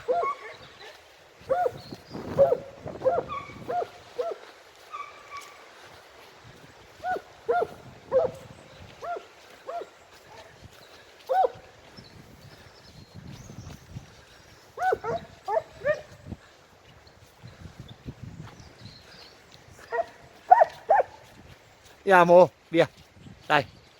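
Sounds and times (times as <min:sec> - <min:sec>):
hounds baying: 0:00.0 - 0:06.0, 0:06.9 - 0:11.8, 0:14.7 - 0:16.3, 0:19.8 - 0:21.3.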